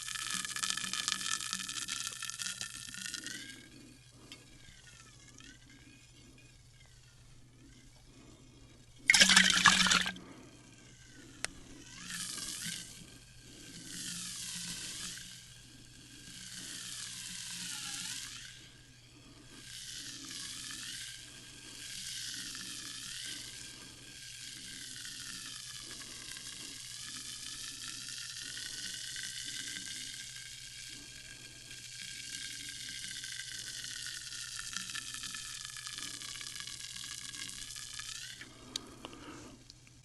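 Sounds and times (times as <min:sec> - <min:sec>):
sparkling water fizzing: 0:09.1 - 0:10.1.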